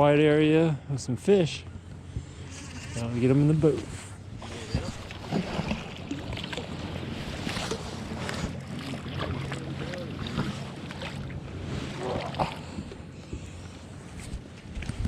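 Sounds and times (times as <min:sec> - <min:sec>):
boat motor running: 0:01.2 - 0:15.0
wind noise on microphone: 0:14.2 - 0:15.0.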